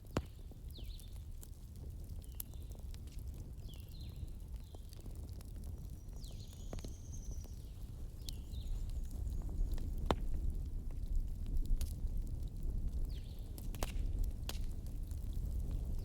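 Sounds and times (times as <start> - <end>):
wood fire crackling: 0.0 - 16.0
low wind rumble: 6.1 - 16.0.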